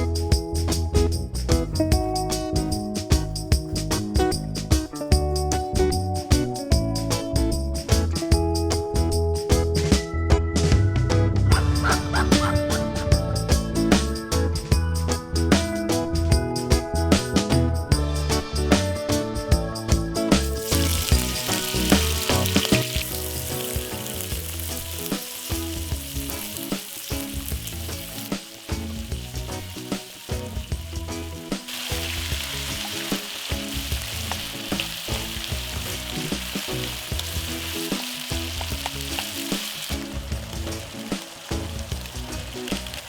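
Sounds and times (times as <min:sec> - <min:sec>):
background music: 0:00.0 - 0:43.0
food sizzling in a frying pan: 0:20.4 - 0:43.0.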